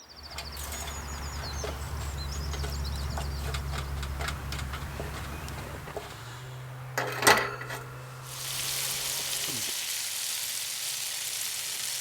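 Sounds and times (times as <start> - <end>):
food sizzling: 8.1 - 12.0.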